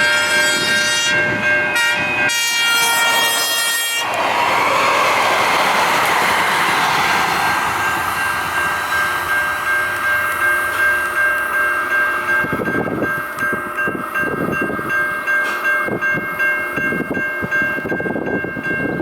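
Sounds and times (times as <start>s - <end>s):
train wheels rushing on rail: 0.4s - 19.0s
steady high tone: 1.1s - 15.4s.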